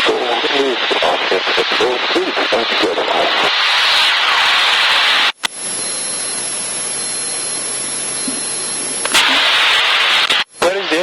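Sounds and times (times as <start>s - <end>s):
static hiss on headset: 0.0s - 11.0s
faint high-pitched whine: 5.4s - 11.0s.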